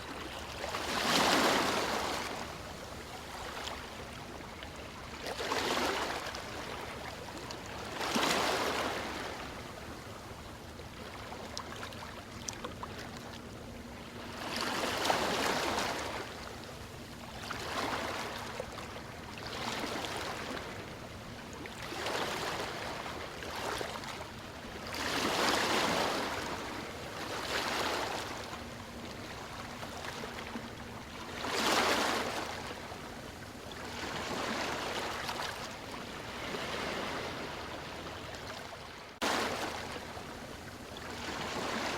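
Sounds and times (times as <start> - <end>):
ocean waves breaking: 0.1 - 2.6, 24.8 - 33.2, 33.8 - 41.9.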